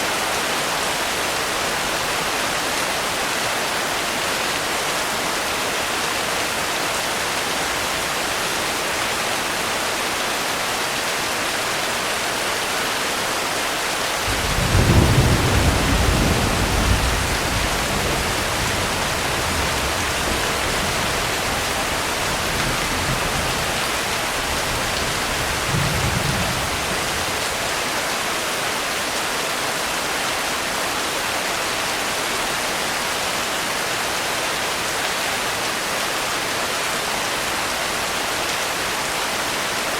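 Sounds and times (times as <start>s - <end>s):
heavy rain hiss: 0.0s - 39.9s
thunder rumbling: 14.3s - 27.4s.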